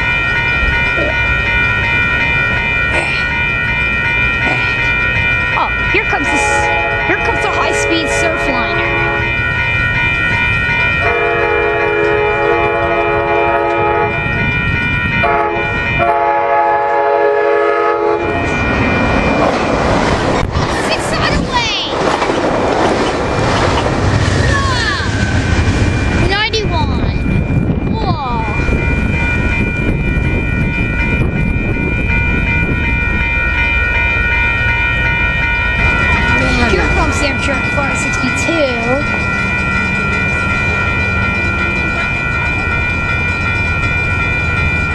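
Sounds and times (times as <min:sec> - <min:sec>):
high ringing tones: 0:00.0 - 0:21.8, 0:24.4 - 0:44.9
train rumbling: 0:00.0 - 0:44.9
train chime horn blasts: 0:05.6 - 0:09.7, 0:10.7 - 0:18.7.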